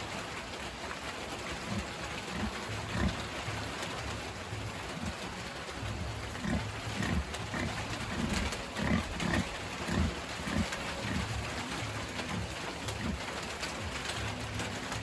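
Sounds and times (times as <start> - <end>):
steady hiss: 0.0 - 15.0
pig grunting: 1.6 - 3.8, 6.2 - 13.4.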